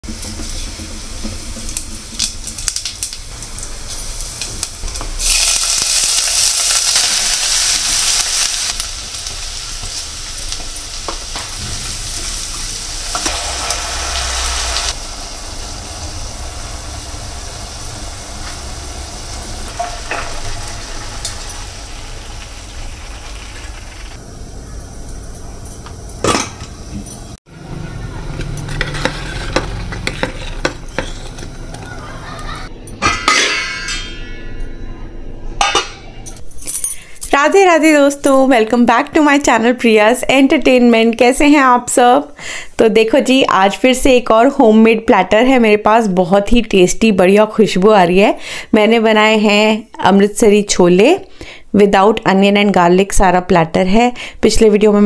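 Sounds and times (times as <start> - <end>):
hot oil sizzling: 0.0 - 25.1
ladle stirring and clinking: 28.4 - 31.9.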